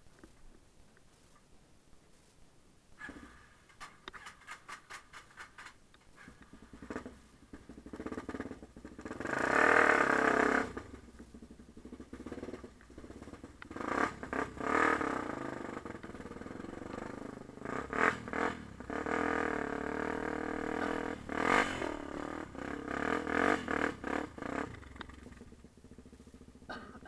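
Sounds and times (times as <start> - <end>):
sharp knocks and rattles: 3.0 - 26.8
dirt bike engine revving: 5.6 - 27.0.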